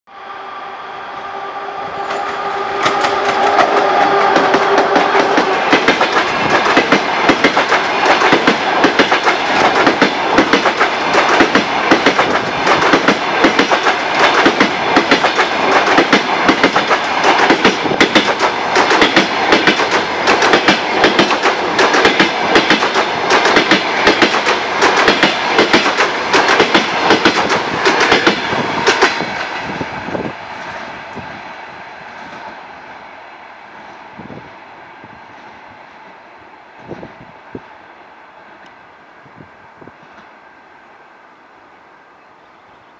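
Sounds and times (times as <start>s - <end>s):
train wheels clattering over rail joints: 2.8s - 29.8s.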